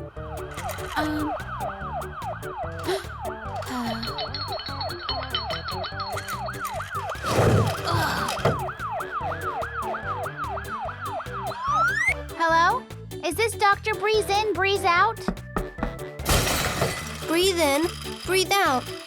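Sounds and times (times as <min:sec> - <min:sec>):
background music: 0:00.0 - 0:19.0
cartoon siren yelping: 0:07.9 - 0:12.2.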